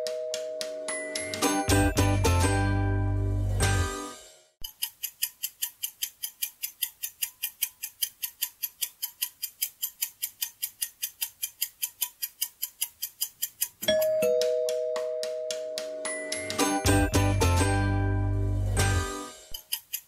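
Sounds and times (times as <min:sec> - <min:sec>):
fast clock ticking: 0:04.6 - 0:17.7, 0:19.1 - 0:20.0.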